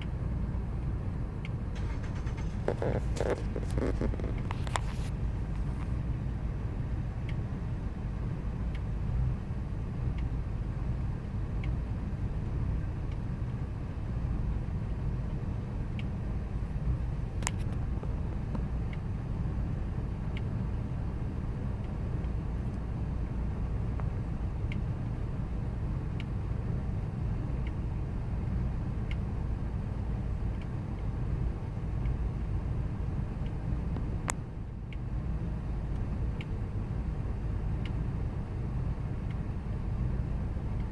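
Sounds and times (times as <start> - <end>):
engine idling rough: 0.0 - 12.6
faint engine tick: 0.0 - 40.9.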